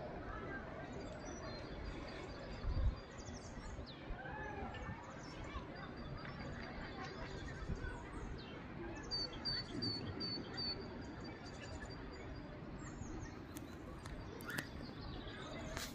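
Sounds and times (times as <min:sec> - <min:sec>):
low background noise: 0:00.0 - 0:15.9
songbird chirping: 0:04.8 - 0:15.9.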